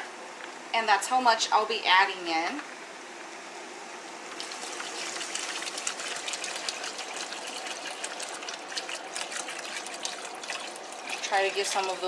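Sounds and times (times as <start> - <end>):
water pouring into a pot: 4.3 - 12.0.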